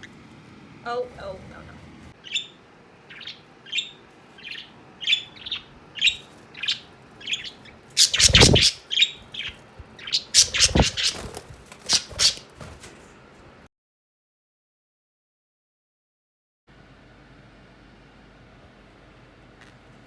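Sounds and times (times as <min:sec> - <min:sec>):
budgerigars chirping: 0:02.2 - 0:12.5
harsh bird calls: 0:02.2 - 0:12.7.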